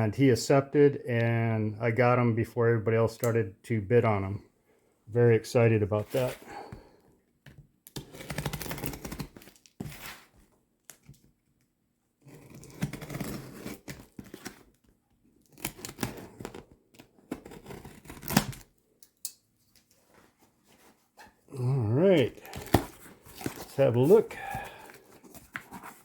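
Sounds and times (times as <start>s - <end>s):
cardboard and packaging rustling: 6.0s - 6.8s, 8.0s - 11.4s, 12.6s - 18.7s, 19.7s - 26.0s
packing tape tearing: 7.9s - 10.2s, 12.4s - 14.8s, 15.4s - 18.7s, 22.2s - 26.0s.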